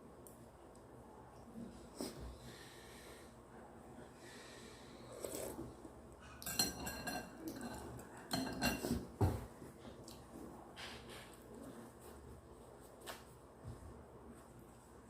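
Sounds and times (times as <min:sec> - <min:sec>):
utensils clinking against bowl: 0:06.3 - 0:09.0.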